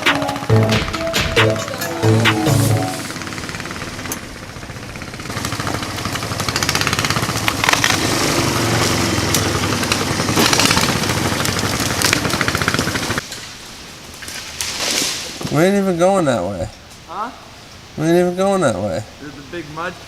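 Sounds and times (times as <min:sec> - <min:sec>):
mini-bike engine running: 0:03.2 - 0:13.2.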